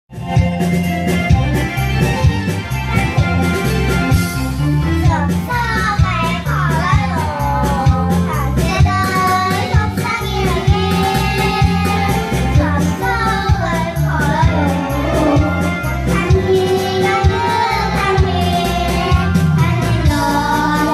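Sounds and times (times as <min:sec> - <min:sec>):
instrumental backing with beat: 0:00.1 - 0:20.9
child singing: 0:05.0 - 0:20.9.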